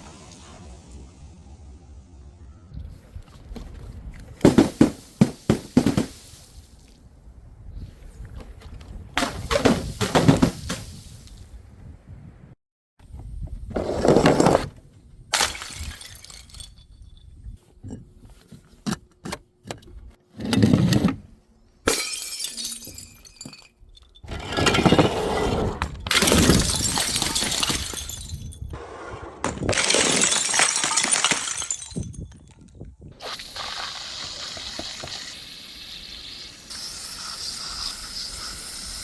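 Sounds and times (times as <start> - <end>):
glass bottles smashing: 15.4 - 17.2, 21.9 - 25.2, 26.0 - 28.7, 29.6 - 32.6
glass shards tinkling: 15.6 - 17.6, 21.9 - 24.5, 26.1 - 28.7, 29.8 - 32.6.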